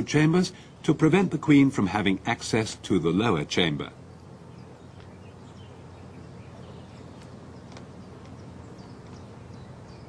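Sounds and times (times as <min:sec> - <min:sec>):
steady low hum: 0:00.0 - 0:10.0
faint clicks: 0:07.2 - 0:08.4.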